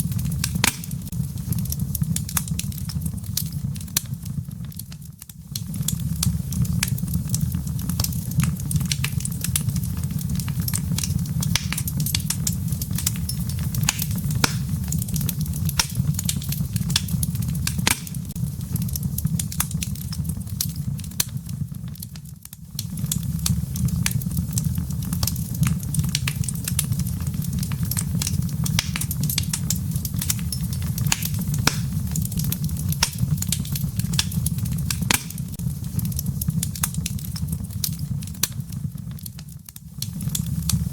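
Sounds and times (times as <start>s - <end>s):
fire crackling and popping: 0.0s - 40.9s.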